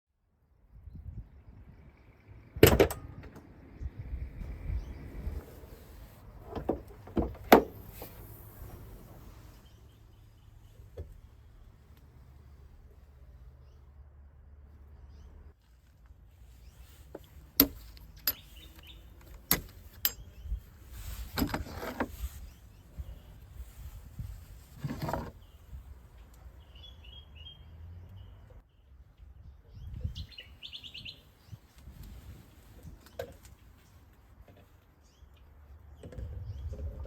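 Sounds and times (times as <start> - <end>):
rustling handling of parts: 15.6 - 25.5
high bird chirps: 29.7 - 31.6.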